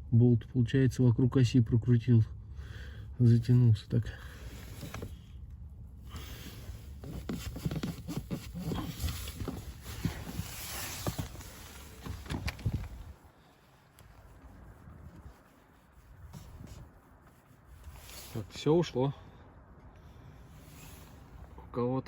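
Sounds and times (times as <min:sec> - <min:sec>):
rustling: 0:04.3 - 0:18.6.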